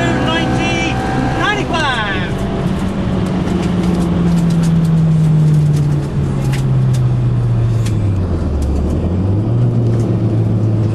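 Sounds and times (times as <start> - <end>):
car engine revs falling: 0.0 - 5.6.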